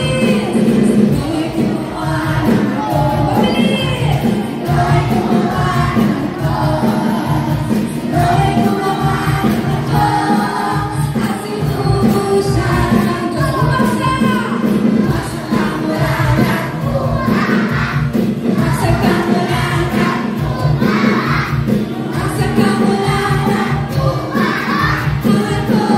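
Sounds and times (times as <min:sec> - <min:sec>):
backing music with steady beat: 0:00.0 - 0:25.9
group of voices singing: 0:00.0 - 0:25.9.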